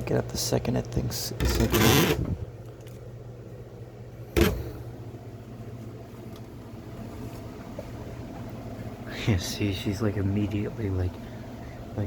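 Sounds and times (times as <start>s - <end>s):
exhaust fan motor humming: 0.0s - 12.0s.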